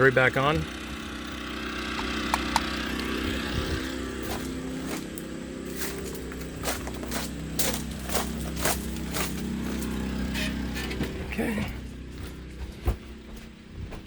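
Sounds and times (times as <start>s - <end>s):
portable generator engine running: 0.0s - 14.0s
sharp clicks and knocks: 1.9s - 3.1s.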